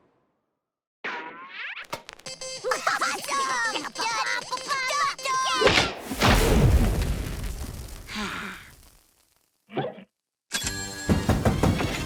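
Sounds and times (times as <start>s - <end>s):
loud crash: 6.0s - 9.0s
breathy sigh: 8.1s - 8.8s.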